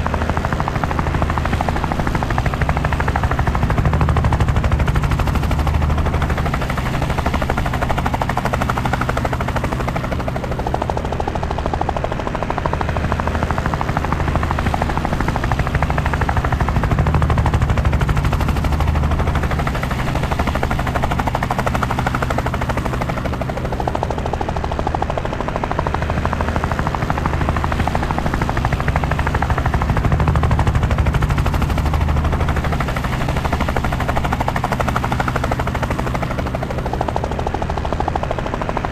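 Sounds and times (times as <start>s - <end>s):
helicopter rotor chopping: 0.0s - 38.9s.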